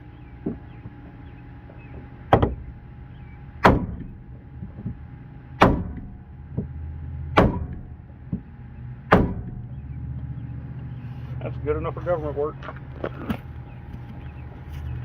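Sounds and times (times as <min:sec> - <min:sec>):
low hum: 0:00.0 - 0:15.0
heavy blows on metal: 0:02.0 - 0:10.1.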